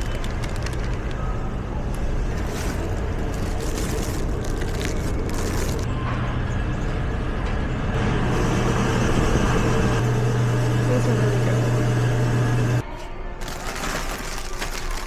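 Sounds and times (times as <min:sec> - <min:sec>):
mechanical rumble with low hum: 0:00.0 - 0:12.9.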